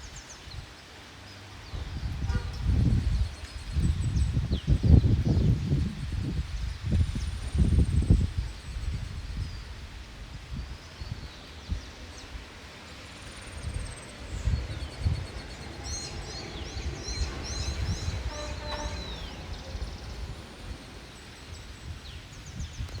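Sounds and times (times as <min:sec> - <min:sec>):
steady outdoor hiss: 0:00.0 - 0:23.0
wild birds calling: 0:11.4 - 0:22.6
low rumbles: 0:13.1 - 0:23.0.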